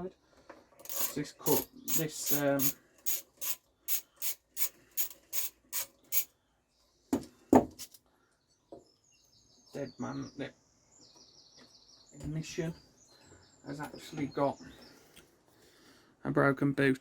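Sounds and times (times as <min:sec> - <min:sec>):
ratchet clicking: 0:00.8 - 0:06.3.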